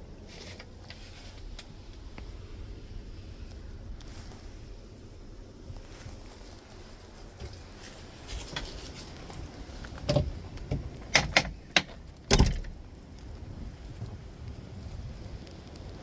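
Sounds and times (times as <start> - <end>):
steady low background noise: 0.0 - 16.0
sharp knocks and clunks: 10.0 - 12.8.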